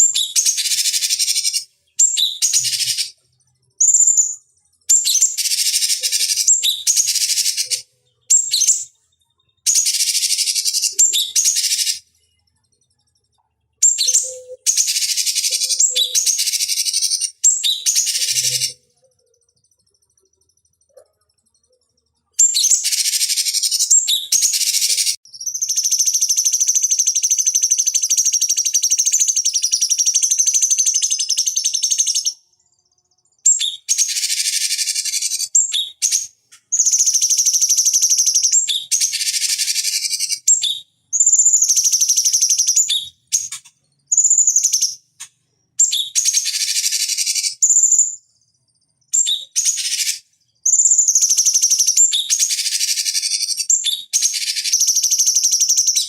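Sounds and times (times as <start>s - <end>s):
bird singing high trills: 13.8s - 18.9s.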